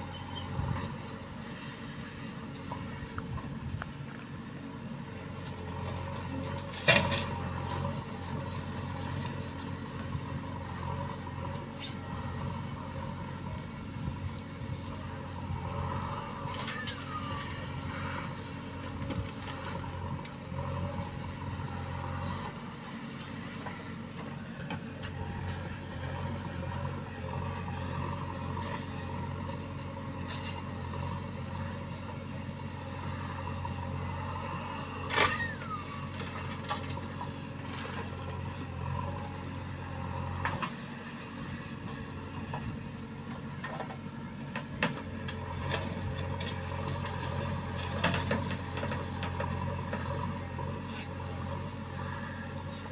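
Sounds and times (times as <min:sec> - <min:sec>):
diesel engine running: 0:00.0 - 0:52.9
short falling squeal: 0:16.7 - 0:17.5, 0:35.2 - 0:36.0.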